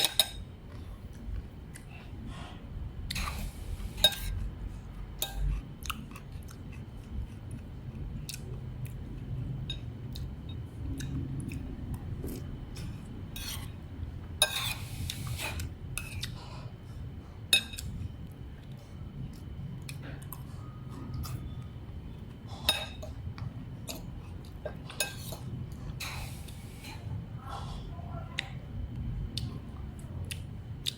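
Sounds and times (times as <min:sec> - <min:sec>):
utensils clinking against dishes: 0:00.0 - 0:00.4, 0:03.1 - 0:04.4, 0:14.4 - 0:16.3, 0:17.5 - 0:17.9, 0:22.5 - 0:23.2, 0:24.7 - 0:26.9
steady low hum: 0:00.0 - 0:30.9.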